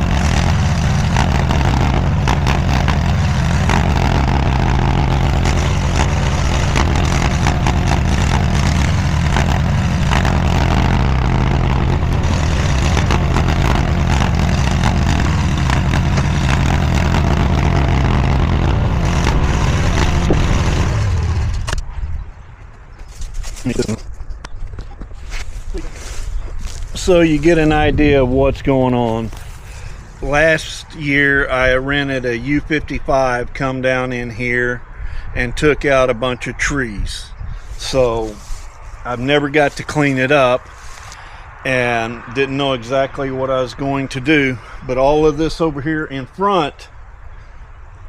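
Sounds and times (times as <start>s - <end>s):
mini skid steer engine running: 0.0s - 21.8s.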